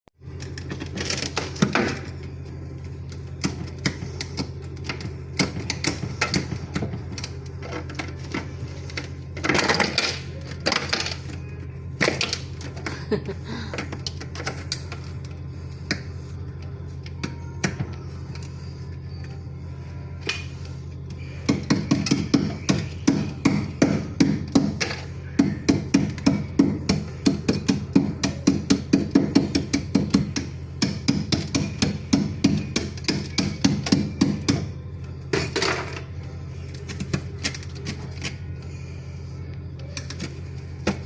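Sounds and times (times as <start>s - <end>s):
steady low hum: 0.2s - 41.0s
rapid hammer strikes: 21.4s - 34.7s.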